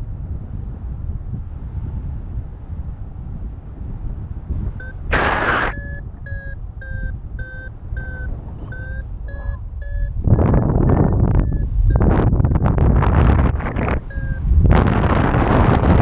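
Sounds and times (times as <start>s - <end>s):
wind rumbling on microphone: 0.0s - 16.0s
variometer short beeps: 4.8s - 14.9s.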